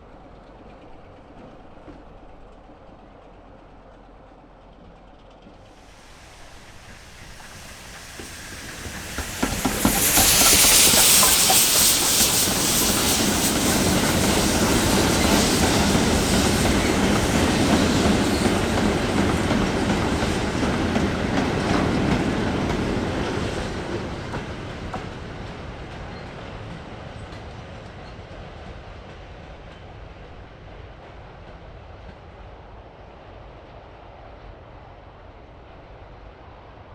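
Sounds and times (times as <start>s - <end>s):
train passing close by: 0.0s - 36.9s
wheels clattering on track: 5.3s - 28.3s.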